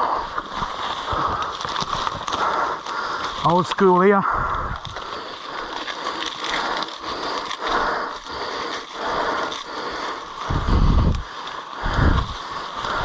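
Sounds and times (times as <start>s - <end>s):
footsteps through wet vegetation: 0.4s - 13.0s
heavy low rumble: 10.4s - 11.2s.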